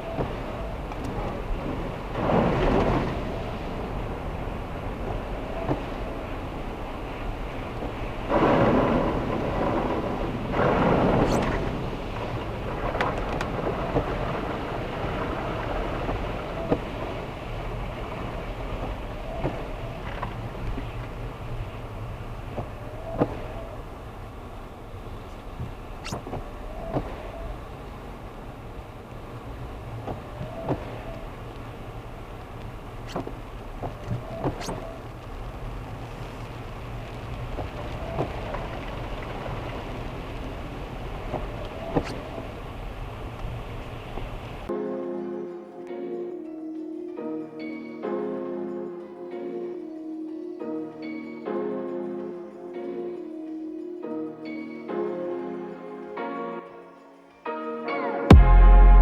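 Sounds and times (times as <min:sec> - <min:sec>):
car engine and road rumble: 0:00.0 - 0:44.7
rain noise: 0:00.0 - 0:59.0
knock with squeak: 0:26.0 - 0:27.2, 0:34.3 - 0:34.9.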